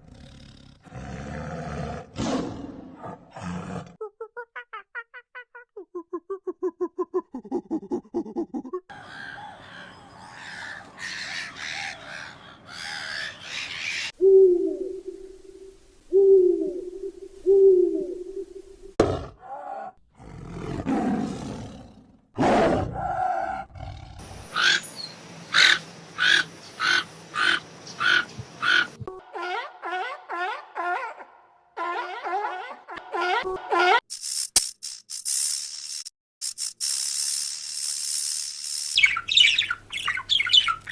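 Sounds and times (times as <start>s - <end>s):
animal calls: 8.9s - 14.2s, 24.5s - 33.5s.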